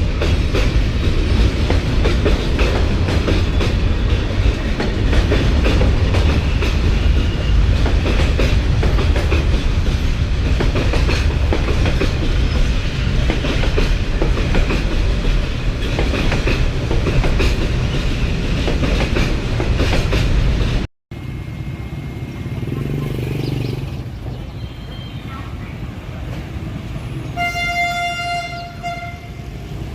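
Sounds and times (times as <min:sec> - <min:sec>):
wheels clacking over rail joints: 0:00.0 - 0:20.8
train rumbling: 0:00.0 - 0:29.9.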